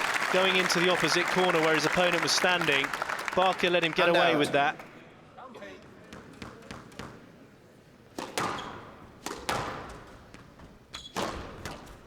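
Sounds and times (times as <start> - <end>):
rackets striking squash ball: 8.1 - 12.0.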